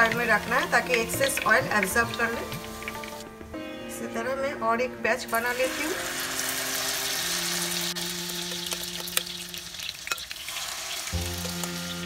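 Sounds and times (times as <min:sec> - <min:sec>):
potato sizzling in hot oil: 0:00.0 - 0:03.2, 0:05.2 - 0:12.0
spoon clicking against pan: 0:10.1 - 0:10.3.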